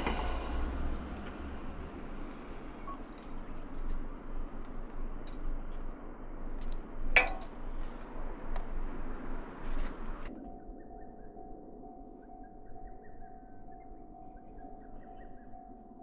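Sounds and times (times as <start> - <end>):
train rumbling on rails: 0.0 - 10.3.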